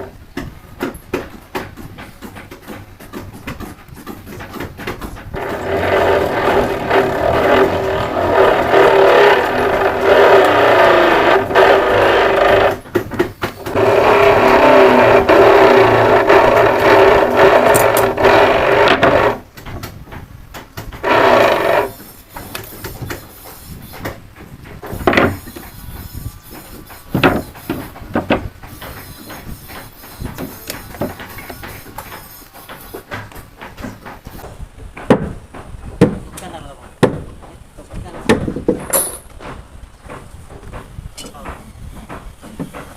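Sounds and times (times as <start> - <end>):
power tool cutting wood: 5.4 - 12.8, 13.6 - 19.4, 21.0 - 23.7
sharp knocks: 23.9 - 42.9.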